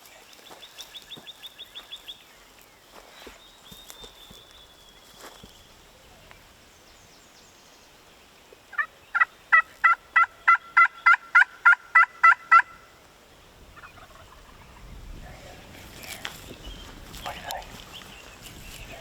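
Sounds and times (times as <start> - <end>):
turkey yelps: 8.7 - 12.9, 13.8 - 14.7.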